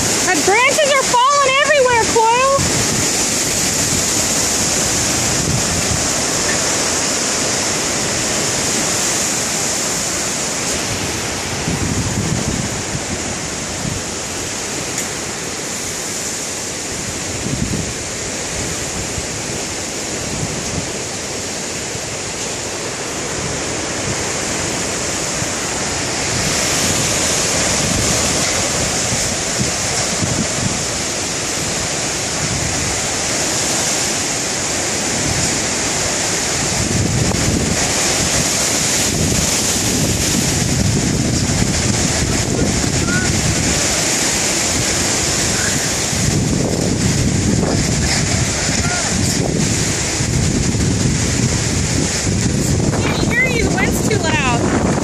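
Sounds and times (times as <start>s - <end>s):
strong wind blowing: 0.0s - 55.0s
wind buffeting microphone: 0.0s - 55.0s.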